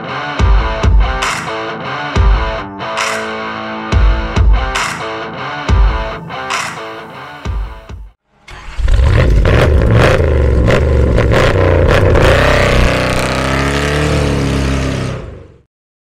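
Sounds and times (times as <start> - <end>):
sharp exhaust cracks: 8.5 - 15.1
car engine accelerating hard: 8.5 - 15.6.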